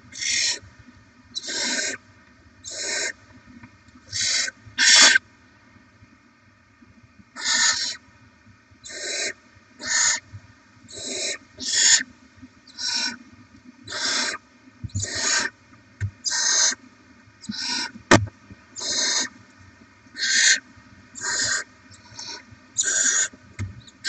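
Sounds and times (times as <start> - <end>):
owl chicks hissing begging calls: 0.1 - 0.6, 1.4 - 2.0, 2.6 - 3.2, 4.1 - 5.2, 7.4 - 8.0, 8.8 - 10.2, 10.9 - 12.0, 12.7 - 13.2, 13.9 - 15.5, 16.2 - 16.8, 17.4 - 17.9, 18.8 - 19.3, 20.2 - 20.6, 21.2 - 23.3.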